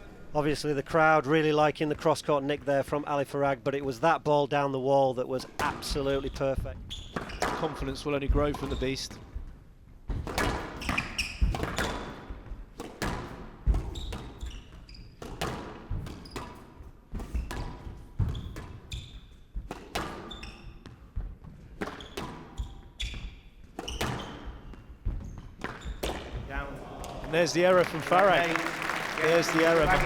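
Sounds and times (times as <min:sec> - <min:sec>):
shoe squeaks on court floor: 0:06.2 - 0:07.6, 0:10.8 - 0:12.2, 0:13.8 - 0:15.4, 0:16.1 - 0:17.6, 0:18.2 - 0:21.1, 0:21.9 - 0:26.3
squash ball hitting rackets and walls: 0:07.0 - 0:07.7, 0:08.3 - 0:09.4, 0:10.0 - 0:26.5.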